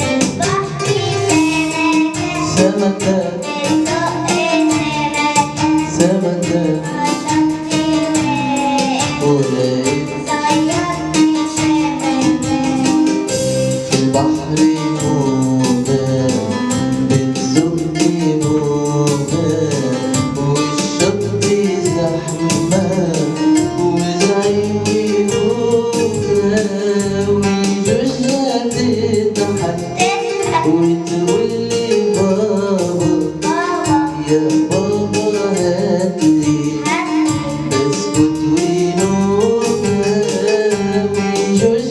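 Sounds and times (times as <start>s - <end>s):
instrumental backing with beat: 0.0s - 41.9s
person singing: 0.0s - 41.9s.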